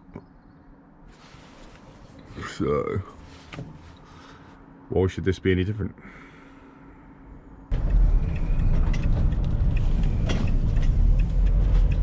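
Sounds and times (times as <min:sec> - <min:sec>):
van engine and road rumble: 0:00.0 - 0:04.8, 0:07.6 - 0:12.0.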